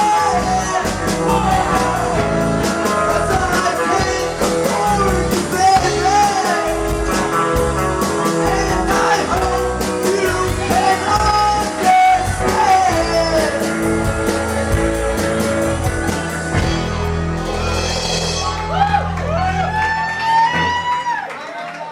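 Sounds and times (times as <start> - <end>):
person singing: 0.0 - 16.4
rock band playing live: 0.0 - 21.2.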